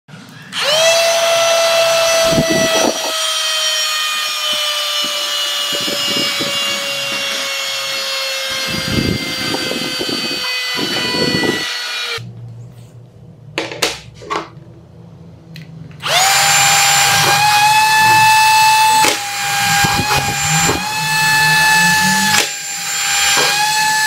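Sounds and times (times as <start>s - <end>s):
handheld vacuum cleaner whine: 0.3s - 12.2s, 16.0s - 24.0s.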